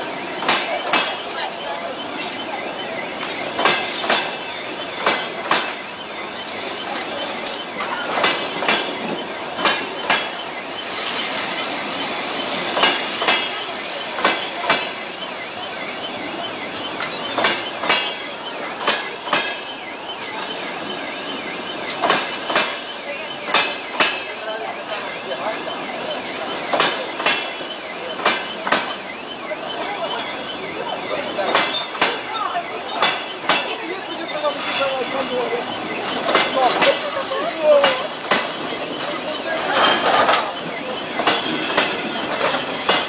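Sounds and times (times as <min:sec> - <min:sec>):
train rolling rumble: 0:00.0 - 0:43.0
train wheels clicking over rail joint: 0:00.0 - 0:43.0.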